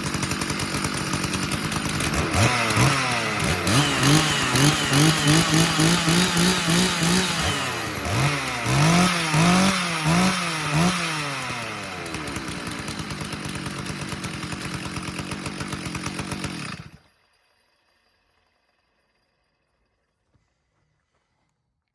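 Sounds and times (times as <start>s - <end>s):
chainsaw revving and idling: 0.0s - 17.2s.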